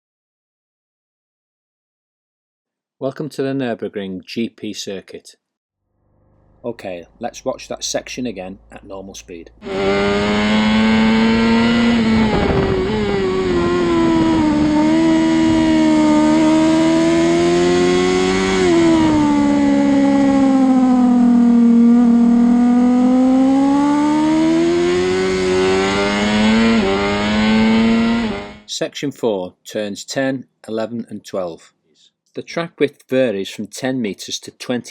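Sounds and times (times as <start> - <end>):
racing motorcycle engine: 9.6 - 28.7.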